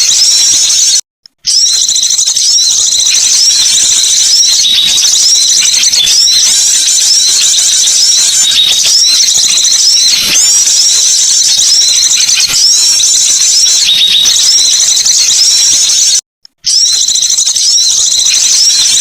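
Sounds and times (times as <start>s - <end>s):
small songbirds twittering: 1.5s - 16.0s.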